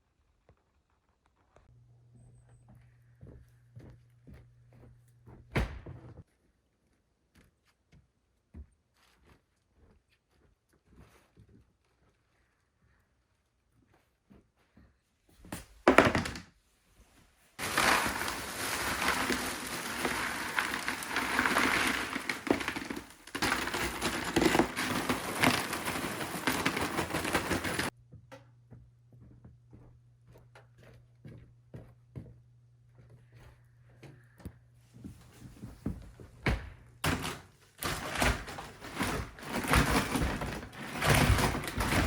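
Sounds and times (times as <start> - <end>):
rustling and clattering: 17.6 - 28.0, 35.0 - 42.0.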